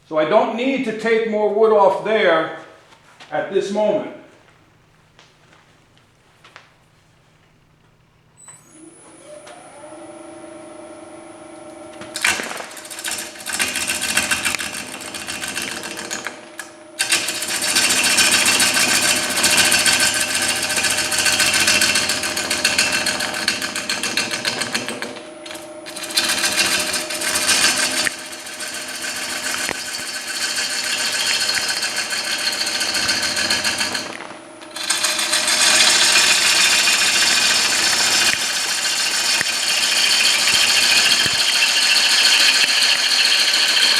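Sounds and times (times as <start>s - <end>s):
lathe motor hum: 8.6s - 43.9s
gouge scraping spinning wood: 12.0s - 43.9s.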